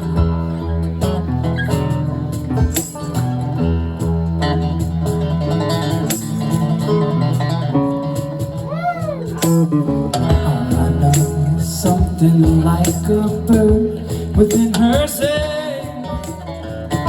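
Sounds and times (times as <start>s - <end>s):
live band music: 8.4s - 12.3s.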